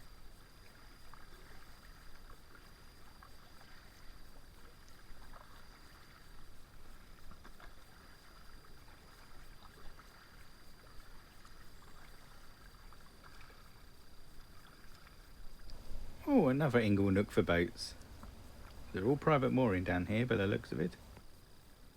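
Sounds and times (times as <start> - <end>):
paddle splashing in water: 0.0 - 21.2
steady low rumble: 15.7 - 21.2.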